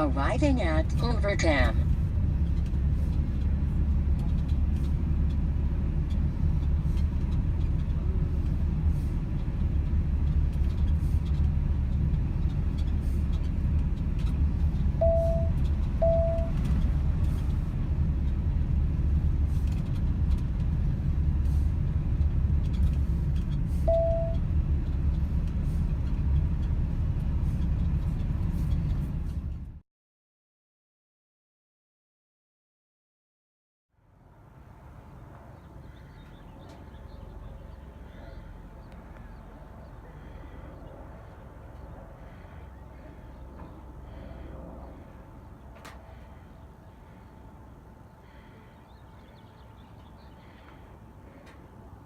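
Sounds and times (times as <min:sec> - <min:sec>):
van road and engine rumble: 0:00.0 - 0:29.8, 0:33.9 - 0:52.0
short beeps: 0:15.0 - 0:16.6, 0:23.8 - 0:24.4.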